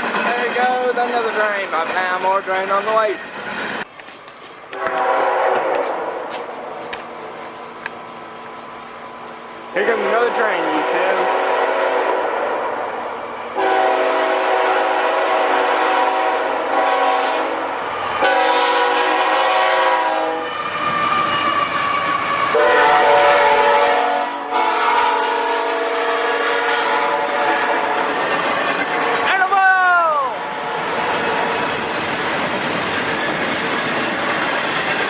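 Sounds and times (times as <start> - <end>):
locomotive air horn blasts: 4.7 - 6.4, 10.0 - 12.7, 13.6 - 20.6, 22.5 - 28.2.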